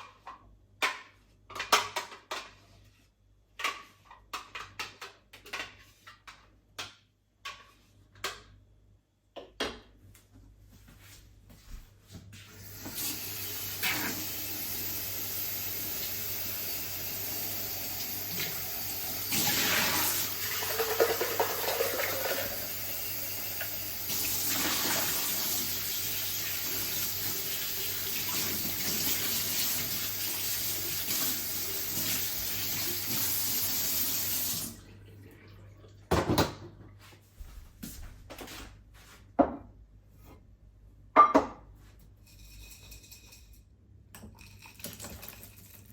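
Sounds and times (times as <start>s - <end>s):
tap running water into sink: 12.7s - 34.8s.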